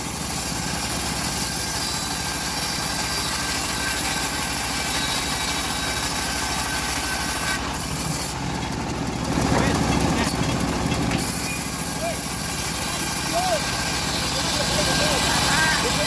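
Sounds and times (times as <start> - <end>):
high hiss of saw cutting: 0.0 - 8.4, 11.2 - 16.0
bandsaw motor drone: 0.0 - 16.0.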